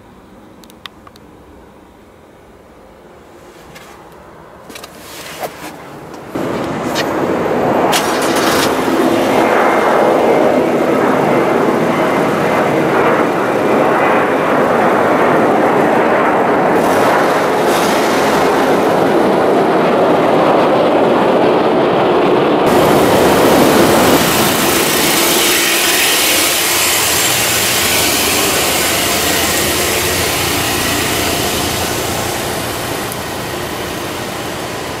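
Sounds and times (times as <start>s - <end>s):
car engine and exhaust running: 4.7s - 9.6s, 22.7s - 35.0s.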